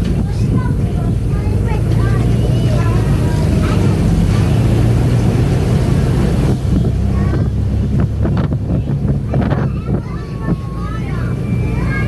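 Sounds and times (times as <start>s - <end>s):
airboat engine and propeller: 0.0s - 12.0s
wind buffeting microphone: 0.0s - 12.0s.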